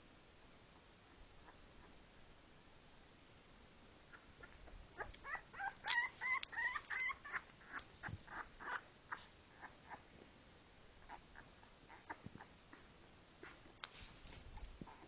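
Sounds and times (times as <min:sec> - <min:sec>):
puppies whimpering and squeaking: 0:04.1 - 0:10.0, 0:11.0 - 0:13.6.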